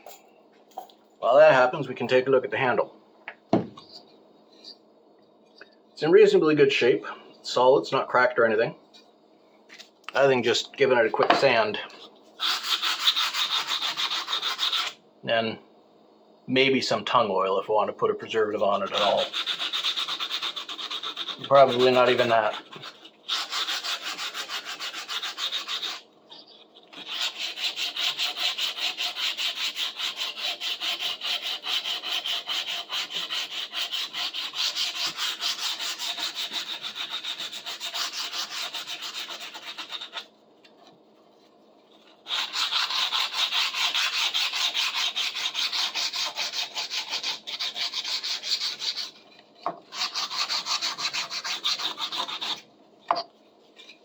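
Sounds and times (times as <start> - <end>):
sanding wood: 12.4 - 14.9, 18.9 - 26.0, 27.0 - 40.3, 42.2 - 49.2, 49.9 - 52.6.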